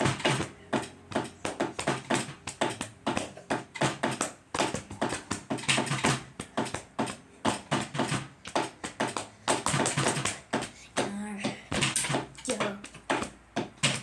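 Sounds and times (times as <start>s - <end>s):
rhythmic sharp taps: 0.0s - 14.0s.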